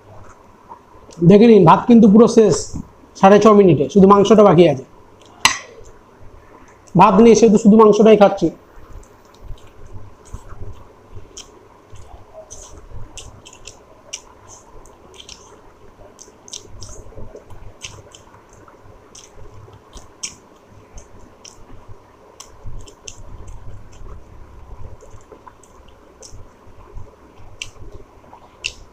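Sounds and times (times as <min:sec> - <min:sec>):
man chewing with wet mouth clicks: 0:05.2 - 0:06.0, 0:08.9 - 0:28.9.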